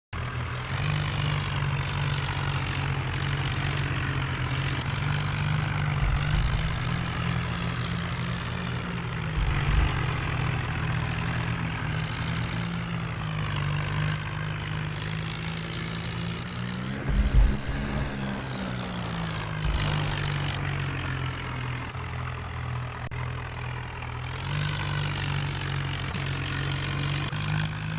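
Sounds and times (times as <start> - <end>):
tractor engine running: 0.1 - 27.9
low thumps: 4.5 - 12.9, 16.9 - 20.8.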